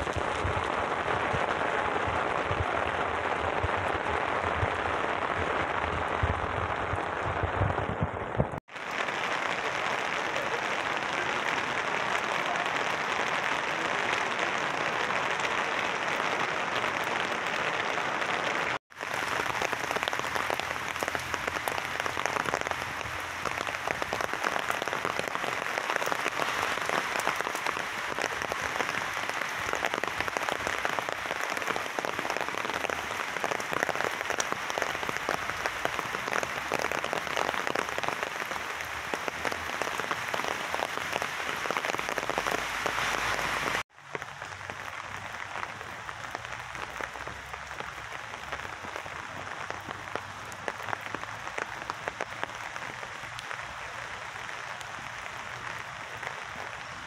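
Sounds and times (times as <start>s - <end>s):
heavy rain on paving and trees: 0.0s - 57.0s.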